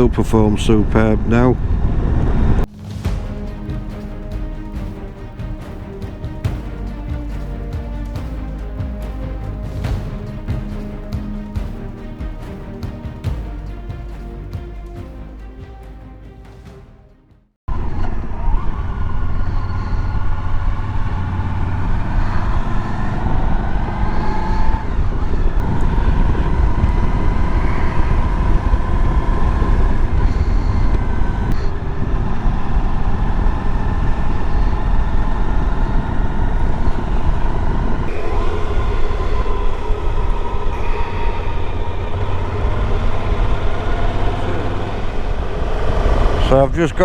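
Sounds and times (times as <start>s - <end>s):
wind rumble on microphone: 17.7s - 46.8s
motorcycle engine revving: 37.0s - 46.7s.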